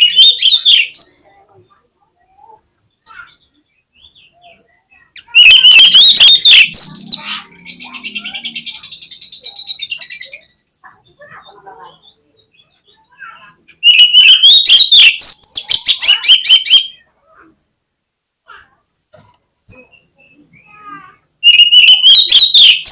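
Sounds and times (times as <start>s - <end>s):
bird singing fast notes and whistles: 0.0s - 1.3s, 5.0s - 10.6s, 12.0s - 17.0s, 19.9s - 22.9s.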